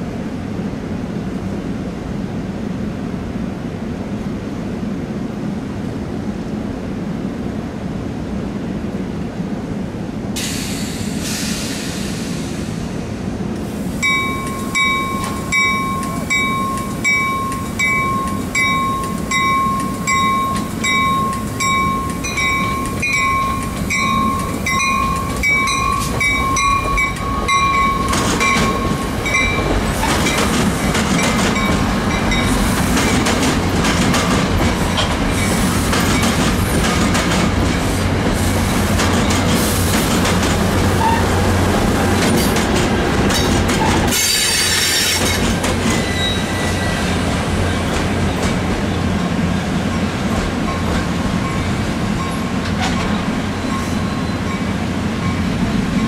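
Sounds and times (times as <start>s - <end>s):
train wheel and rail rumble: 0.0s - 56.0s
low locomotive hum: 12.2s - 56.0s
rattling train cars: 13.7s - 56.0s
locomotive bell ringing: 14.0s - 29.7s.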